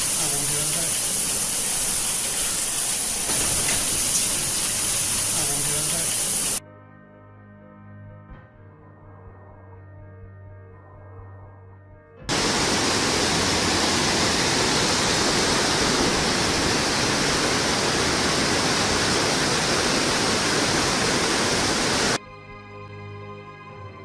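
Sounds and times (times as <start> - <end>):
soft music: 5.4 - 12.3, 22.2 - 24.0
loud steady rushing noise: 12.3 - 22.2.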